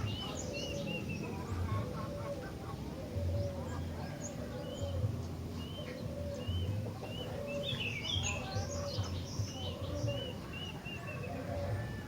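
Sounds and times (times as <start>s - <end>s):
bird whistling song: 5.6s - 12.0s.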